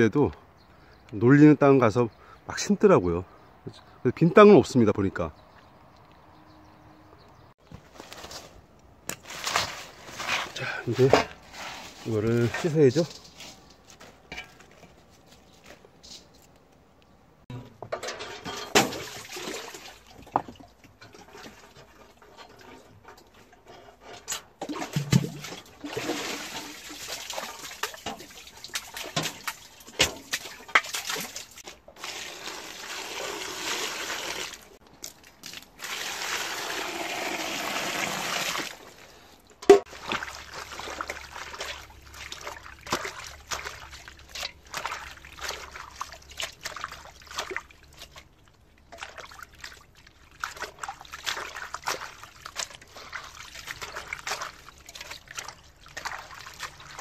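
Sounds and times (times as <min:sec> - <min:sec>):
water splashing and dripping: 0:18.4 - 0:57.0
running water: 0:39.8 - 0:57.0.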